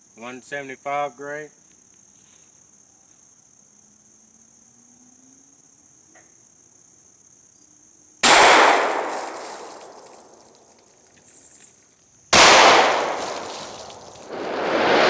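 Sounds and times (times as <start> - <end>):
pistol shots with echo: 8.2 - 10.3, 12.4 - 13.7.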